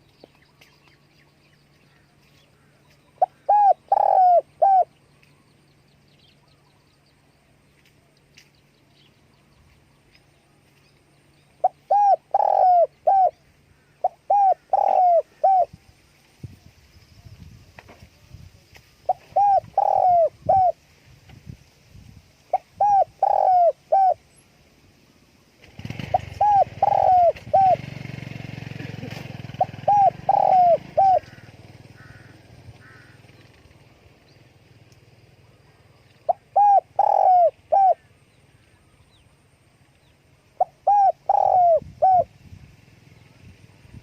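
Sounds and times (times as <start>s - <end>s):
dove cooing: 3.2s - 4.9s, 11.6s - 15.8s, 19.0s - 20.8s, 22.5s - 24.2s, 25.8s - 33.2s, 36.3s - 38.1s, 40.6s - 42.3s.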